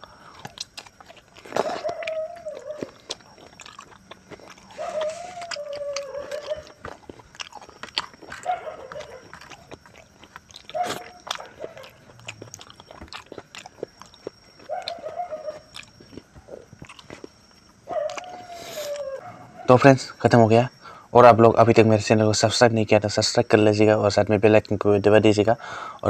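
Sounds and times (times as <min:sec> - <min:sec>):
man chewing and lip-smacking: 0:00.0 - 0:19.2
mouth clicks: 0:00.0 - 0:19.2
short whining calls: 0:04.6 - 0:07.0, 0:10.6 - 0:12.6, 0:13.9 - 0:21.2.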